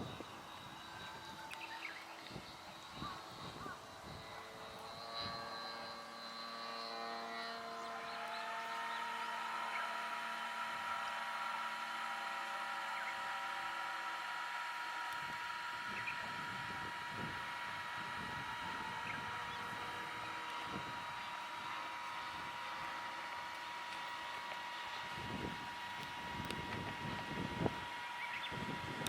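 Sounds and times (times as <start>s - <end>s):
model airplane motor drone: 0.0s - 29.0s.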